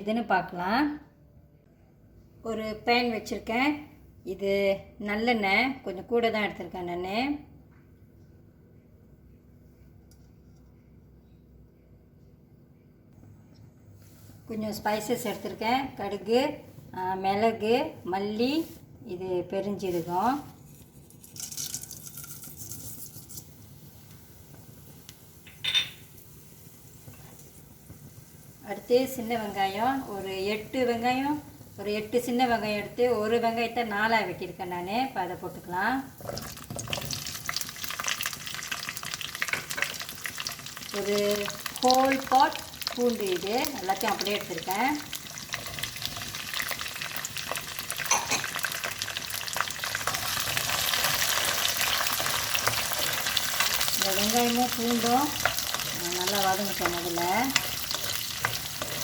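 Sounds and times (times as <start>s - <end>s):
metal utensil clinking on pan: 25.5s - 26.0s, 48.0s - 48.6s
spices hissing in hot oil: 26.1s - 33.0s, 36.2s - 59.0s.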